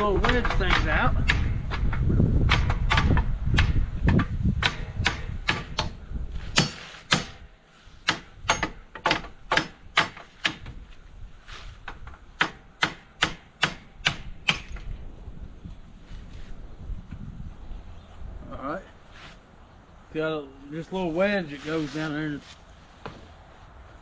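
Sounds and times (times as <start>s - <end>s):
hammer striking steel wedges: 4.6s - 10.7s.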